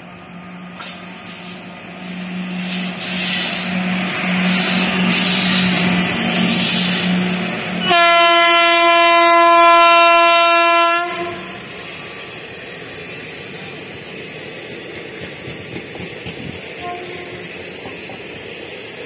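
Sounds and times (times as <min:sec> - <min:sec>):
train running noise: 0:00.0 - 0:19.0
train horn blast: 0:07.8 - 0:11.7, 0:16.8 - 0:17.6.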